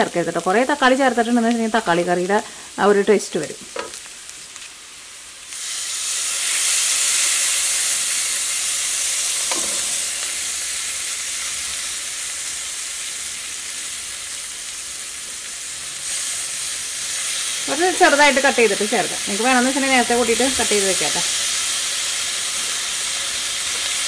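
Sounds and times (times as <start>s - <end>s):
masala sizzling in oil: 0.0s - 24.0s
tomato pieces dropping into hot oil: 9.4s - 10.4s.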